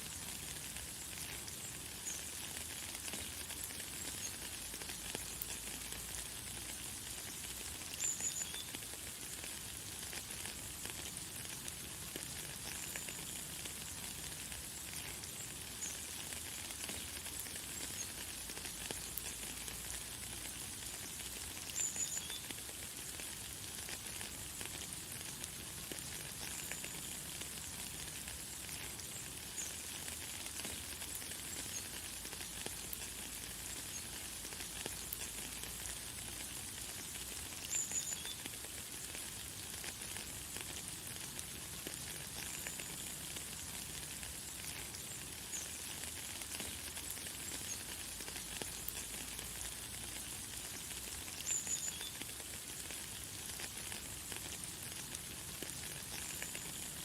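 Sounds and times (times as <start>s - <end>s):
light rain hissing: 0.0s - 57.0s.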